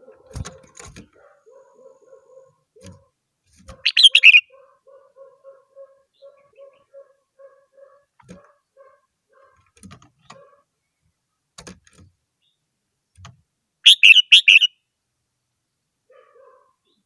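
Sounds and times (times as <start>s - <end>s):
bulbul singing warbled phrase: 3.8s - 4.5s, 13.9s - 14.8s.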